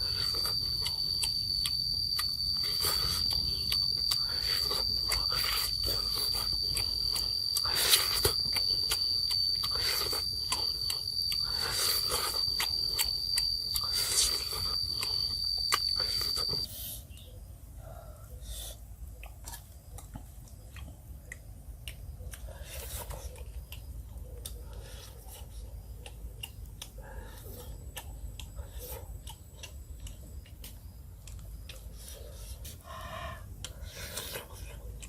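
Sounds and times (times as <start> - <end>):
high-pitched insect drone: 0.0 - 16.7
crunching chewing clicks: 0.0 - 17.5, 18.3 - 35.0.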